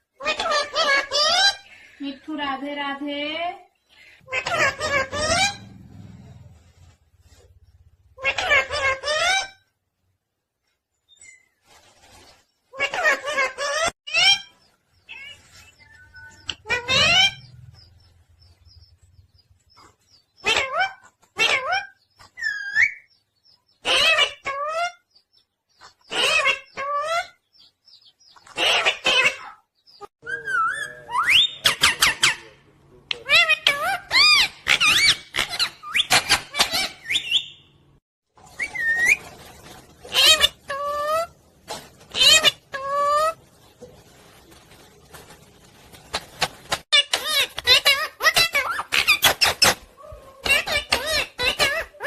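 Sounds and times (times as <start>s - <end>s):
parrot squawking: 0.2s - 1.7s, 4.2s - 5.7s, 8.2s - 9.6s, 15.1s - 17.5s, 20.4s - 23.1s, 23.8s - 25.0s, 26.1s - 27.4s, 28.6s - 29.6s, 30.2s - 37.7s, 40.1s - 41.4s, 42.1s - 43.4s, 46.9s - 52.0s
parrot chirping and whistling: 22.4s - 23.1s, 30.2s - 31.7s, 34.1s - 37.7s, 38.4s - 39.3s.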